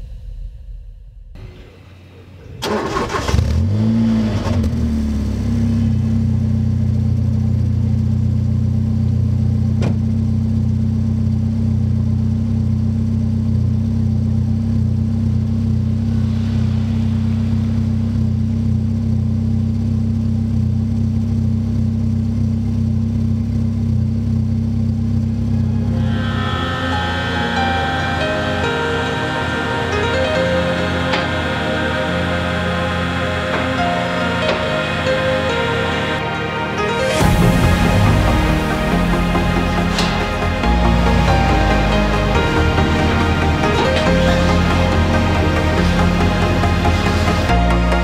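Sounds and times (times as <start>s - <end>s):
car engine idling: 1.3s - 48.0s
engine starter cranking: 2.4s - 4.7s.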